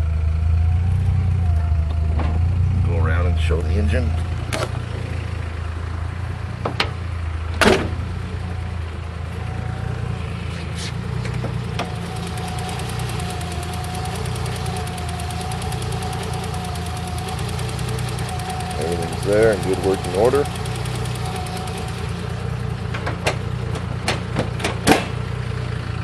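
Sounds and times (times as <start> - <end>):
car engine idling: 0.0 - 26.0
sharp engine knocks: 6.6 - 8.1, 22.8 - 25.3.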